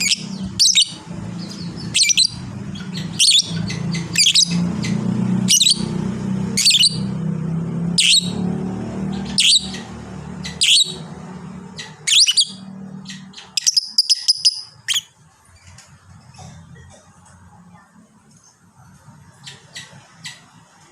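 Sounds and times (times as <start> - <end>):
bird chirping shrilly: 0.0 - 5.9, 6.5 - 7.2, 8.0 - 8.4, 9.1 - 11.1, 11.7 - 15.2.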